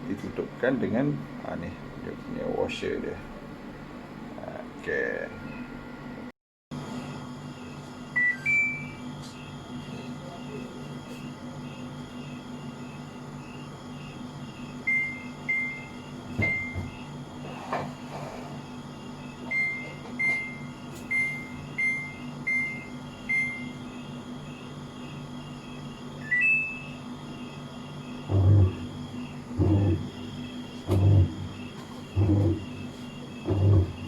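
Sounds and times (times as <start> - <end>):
steady low hum: 0.0 - 34.0
washing machine button beeps: 8.2 - 9.0, 14.9 - 17.0, 19.5 - 23.8, 26.2 - 27.0
crickets chirping: 8.9 - 34.0.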